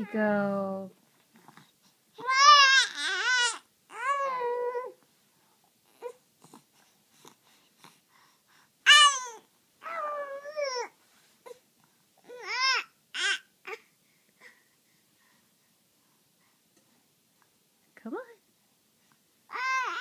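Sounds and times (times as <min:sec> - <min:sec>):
baby squealing and whining: 0:02.2 - 0:05.0, 0:08.9 - 0:11.6, 0:12.2 - 0:13.8, 0:19.5 - 0:20.0.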